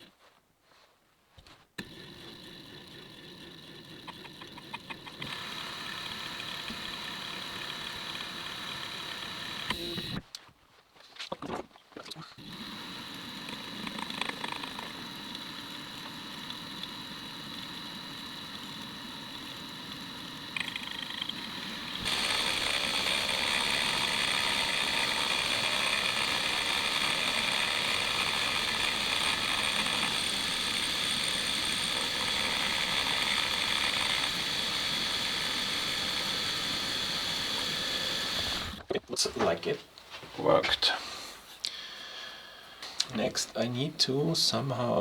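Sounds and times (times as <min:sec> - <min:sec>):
metal lathe gear whine: 0:01.8 - 0:10.2, 0:12.4 - 0:38.9.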